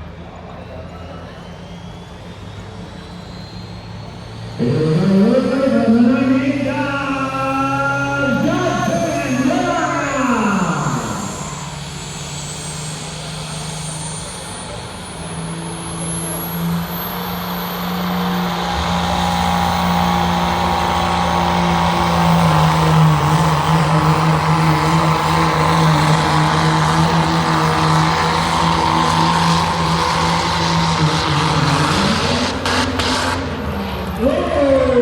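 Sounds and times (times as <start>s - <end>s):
diesel engine at high revs: 0.0s - 35.0s.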